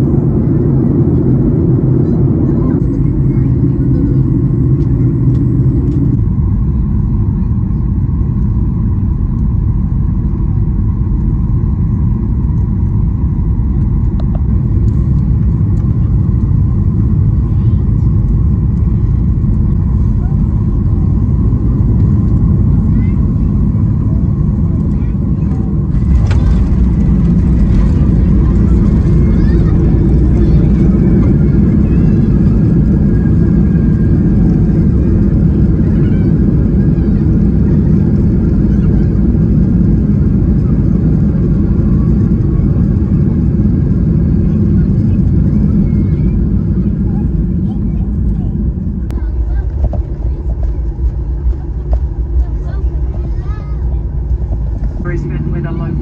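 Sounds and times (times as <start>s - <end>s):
jet engines rumbling in cabin: 0.0s - 56.0s.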